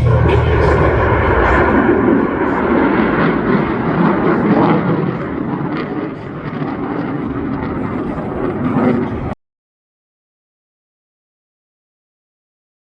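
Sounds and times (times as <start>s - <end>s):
jet engine roaring: 0.0s - 9.4s.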